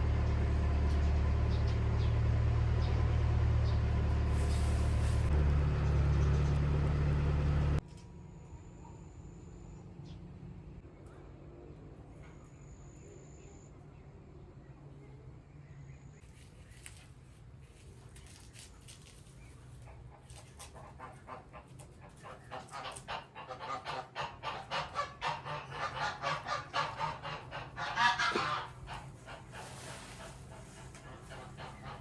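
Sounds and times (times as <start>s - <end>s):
geese honking: 19.9s - 32.0s.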